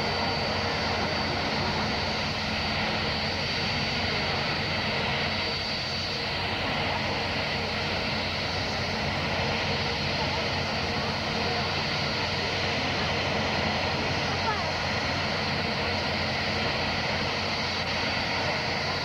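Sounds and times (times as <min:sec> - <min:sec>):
jet engines running: 0:00.0 - 0:19.0.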